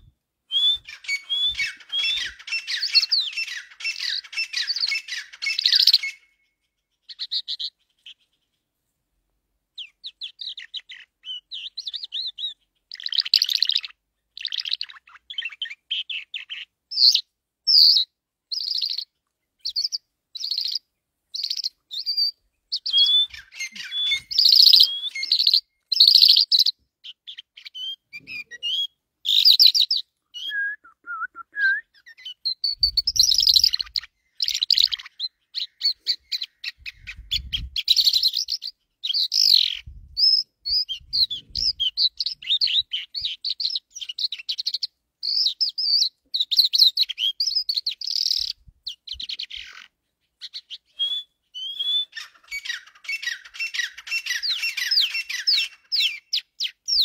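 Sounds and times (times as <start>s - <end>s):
lower bird call: 0.0s - 8.5s, 21.4s - 49.8s, 50.4s - 57.0s
birds chirping: 0.0s - 8.7s, 9.8s - 57.0s.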